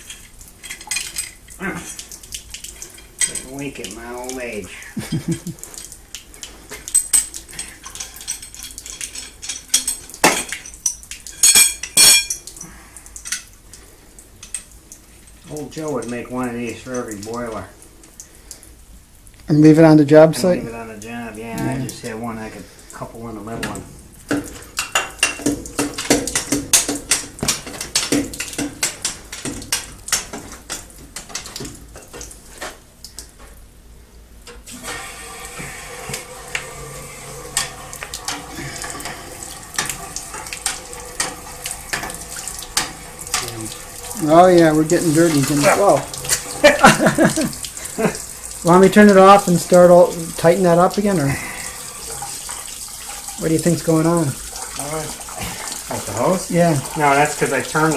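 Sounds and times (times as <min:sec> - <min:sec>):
metal pipes clinking: 0:00.0 - 0:04.6, 0:05.2 - 0:13.6, 0:23.4 - 0:32.8, 0:34.5 - 0:51.3
metal clanking and knocking: 0:23.6 - 0:31.7.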